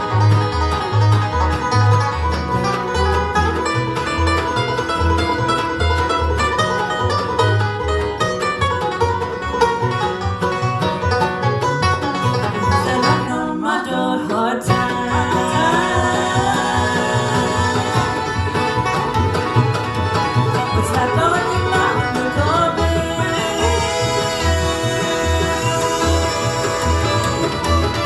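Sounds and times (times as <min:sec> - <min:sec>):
banjo and picked strings: 0:00.0 - 0:28.0
upright bass notes: 0:00.0 - 0:28.0
person singing: 0:12.7 - 0:19.2, 0:20.5 - 0:28.0.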